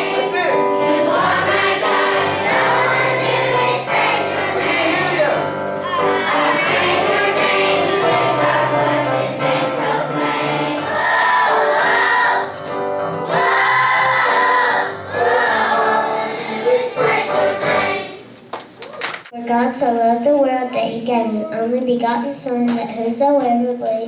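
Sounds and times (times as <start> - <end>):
children's choir singing: 0.0 - 18.3.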